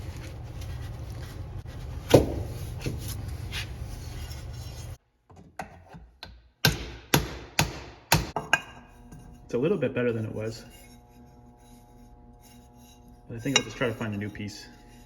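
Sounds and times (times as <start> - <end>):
steady low hum: 8.2 - 15.0.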